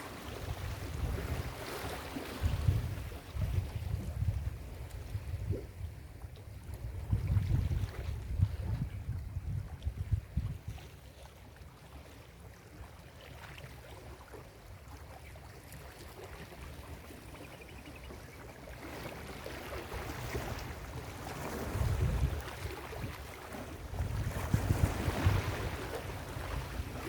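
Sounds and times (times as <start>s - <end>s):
ocean surf on beach: 0.0s - 2.8s, 19.0s - 27.0s
wind rumble on microphone: 0.0s - 11.0s, 18.8s - 27.0s.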